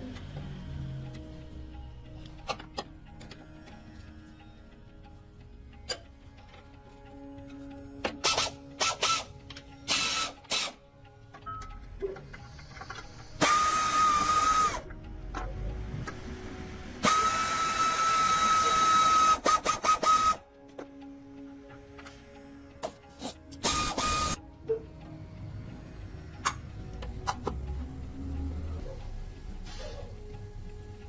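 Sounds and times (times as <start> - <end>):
power tool whining: 12.4 - 14.9, 17.0 - 20.4, 23.5 - 24.4.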